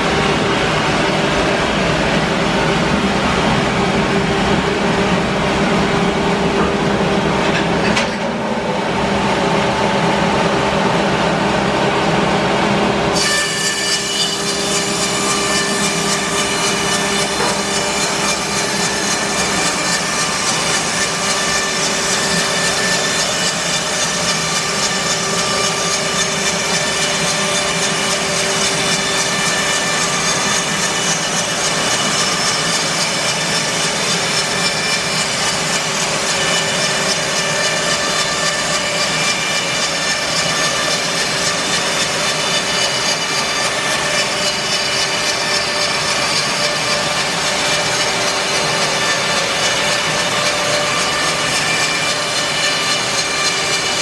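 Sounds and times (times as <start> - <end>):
band saw blade cutting wood: 13.2 - 54.0.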